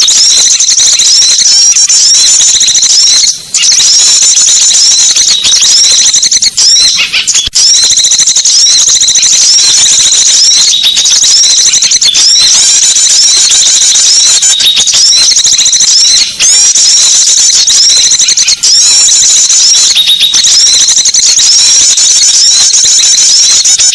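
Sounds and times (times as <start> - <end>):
small songbirds chattering: 0.0 - 7.8.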